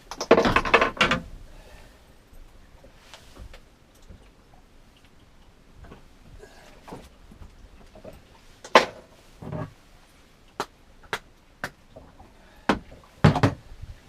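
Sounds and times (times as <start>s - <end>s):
low rumble of wind: 0.0s - 14.0s
knocks and thuds on a boat: 0.2s - 1.3s, 11.1s - 13.9s.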